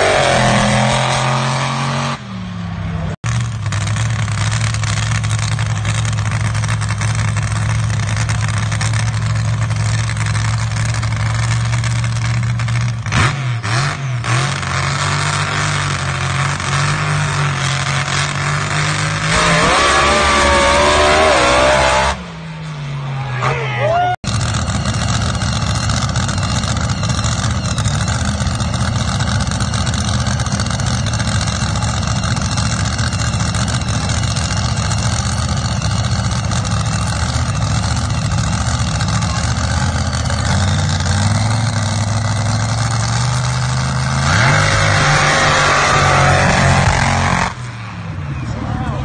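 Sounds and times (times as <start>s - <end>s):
engine revving: 0.0s - 23.6s, 24.2s - 48.1s
racing car engines running: 0.0s - 49.0s
harsh loud noise: 44.2s - 48.1s.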